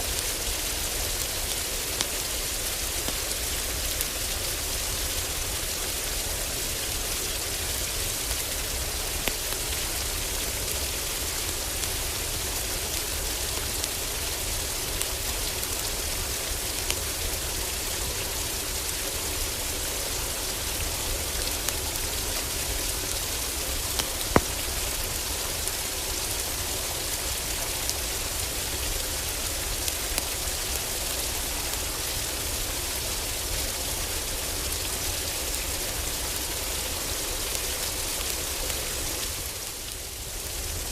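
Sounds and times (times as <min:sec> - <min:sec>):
heavy rain on a roof: 0:00.0 - 0:40.9
wood fire crackling: 0:07.1 - 0:32.6.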